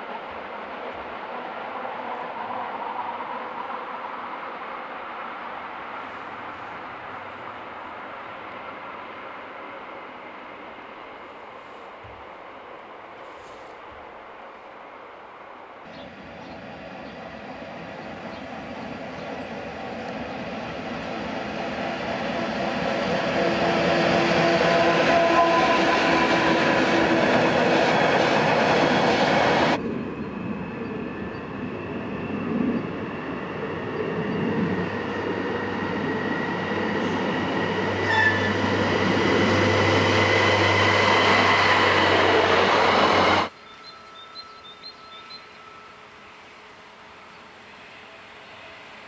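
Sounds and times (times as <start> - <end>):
train rumbling past: 0.0 - 49.0.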